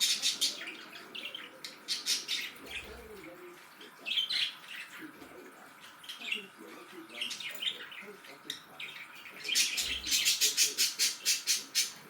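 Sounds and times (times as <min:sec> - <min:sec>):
budgerigars chirping: 0:00.0 - 0:03.0, 0:07.1 - 0:12.0.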